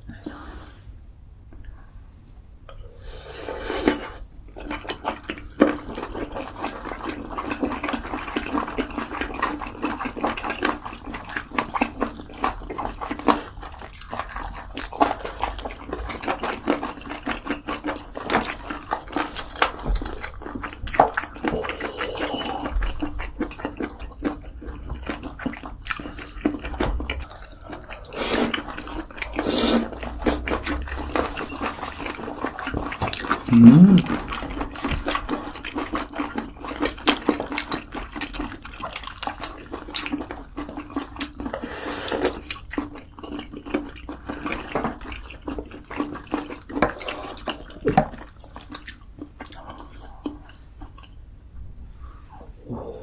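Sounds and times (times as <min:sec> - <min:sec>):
wet chewing and slurping: 0:03.3 - 0:51.2.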